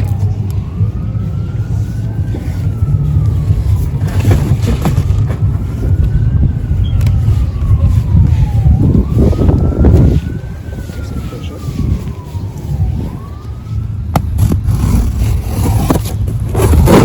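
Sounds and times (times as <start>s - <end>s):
emergency siren wailing: 0.0s - 17.0s
low rumble: 0.0s - 17.0s.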